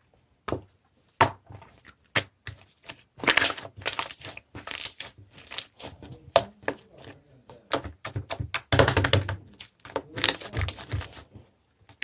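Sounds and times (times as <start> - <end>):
slime squished by hand: 2.0 - 11.3.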